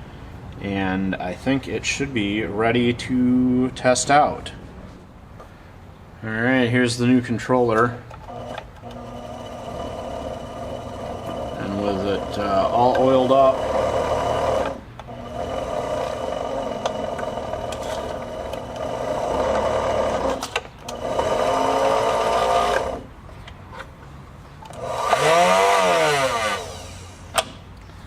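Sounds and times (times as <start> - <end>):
sewing machine motor running: 8.3 - 23.1, 24.7 - 27.2.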